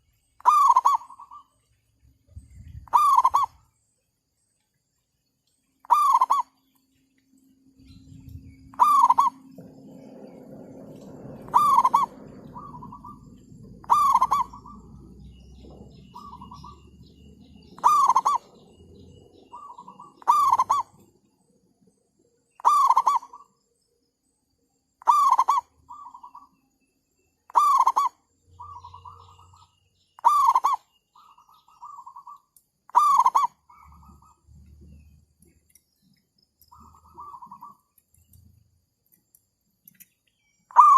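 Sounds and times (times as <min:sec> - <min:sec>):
doves cooing: 0:00.4 - 0:01.6, 0:02.6 - 0:03.7, 0:05.8 - 0:06.5, 0:07.7 - 0:21.2, 0:22.6 - 0:23.5, 0:25.0 - 0:26.4, 0:27.5 - 0:29.6, 0:30.2 - 0:35.7, 0:36.6 - 0:38.4, 0:40.7 - 0:40.9
low rumble: 0:07.7 - 0:20.0.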